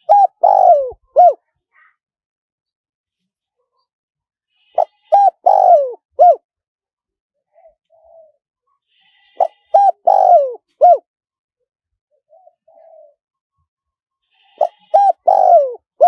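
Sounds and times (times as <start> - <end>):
dove cooing: 0.0 - 1.4, 4.8 - 6.4, 9.4 - 11.0, 12.3 - 13.2, 14.6 - 16.0.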